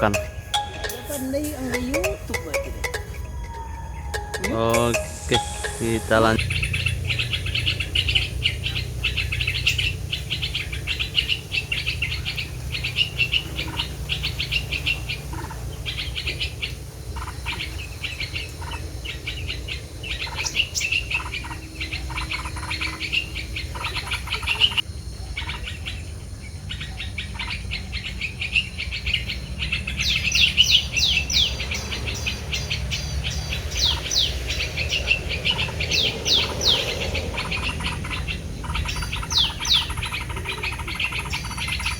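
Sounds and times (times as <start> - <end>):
steady low rumble: 0.0 - 13.3
rapid falling bird chirps: 0.0 - 41.9
songbirds chirping: 0.0 - 41.9.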